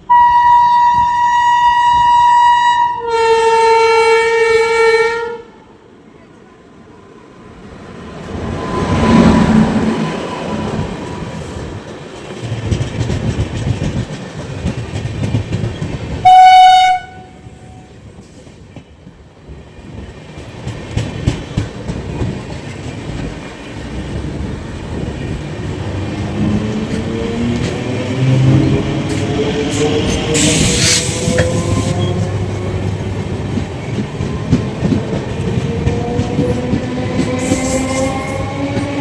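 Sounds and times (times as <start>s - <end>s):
train horn blast: 0.0s - 5.7s, 16.2s - 18.0s
train wheels rumbling on rails: 7.4s - 39.0s
wheels clicking over rail joints: 10.8s - 16.3s, 18.1s - 39.0s.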